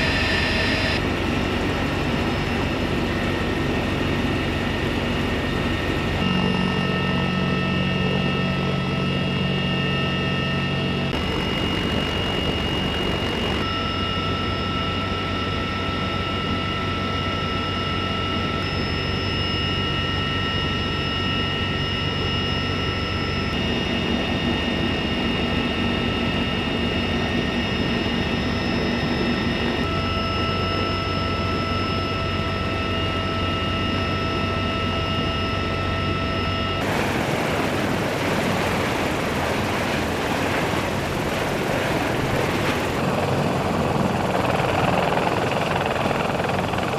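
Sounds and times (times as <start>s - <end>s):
helicopter turbine engines whining: 0.0s - 46.9s
rushing rotor noise: 36.8s - 46.9s.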